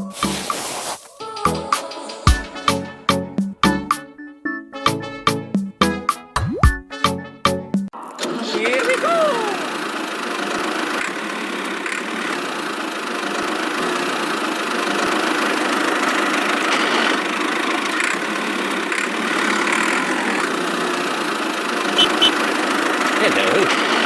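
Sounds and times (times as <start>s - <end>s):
engine running: 9.2s - 24.0s
short high beeps: 22.0s - 22.4s.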